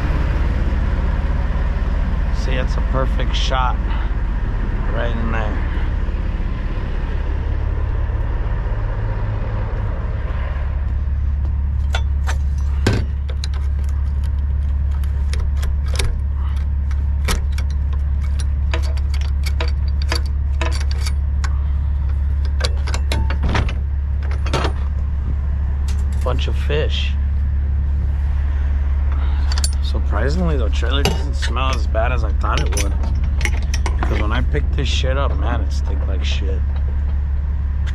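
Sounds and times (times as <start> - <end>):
diesel engine idling: 0.0 - 37.9
sharp clicks and metallic rattles: 11.4 - 26.8, 29.1 - 37.9.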